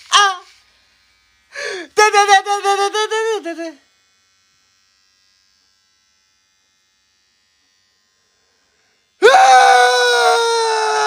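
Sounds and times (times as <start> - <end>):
air squealing out of balloon: 9.2 - 11.0.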